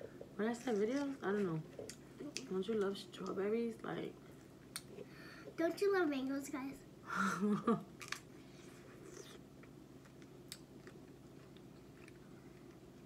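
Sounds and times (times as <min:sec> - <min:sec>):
chewing fruit: 0:08.0 - 0:13.0.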